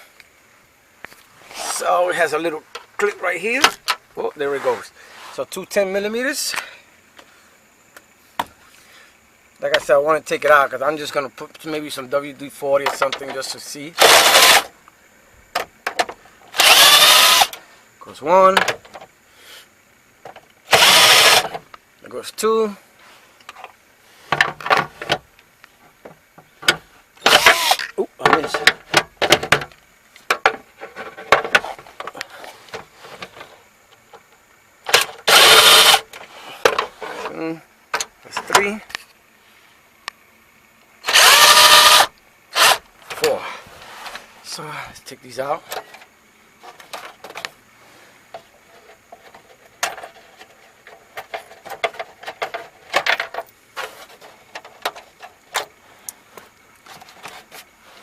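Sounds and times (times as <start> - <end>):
loud rasping burst: 14.0 - 14.7, 16.5 - 17.6, 20.7 - 21.6, 27.2 - 27.9, 34.9 - 36.0, 41.0 - 42.9.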